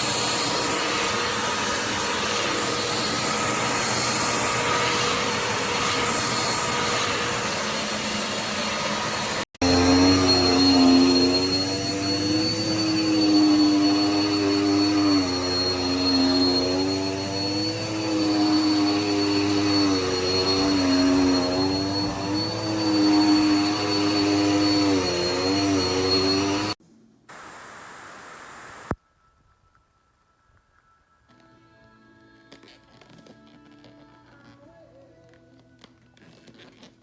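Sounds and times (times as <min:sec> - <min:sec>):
vacuum cleaner running: 0:00.0 - 0:29.0
faint hiss: 0:27.2 - 0:29.1.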